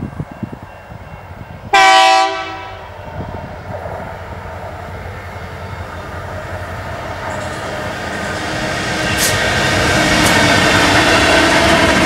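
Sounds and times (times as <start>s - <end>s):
locomotive horn: 1.7s - 3.0s.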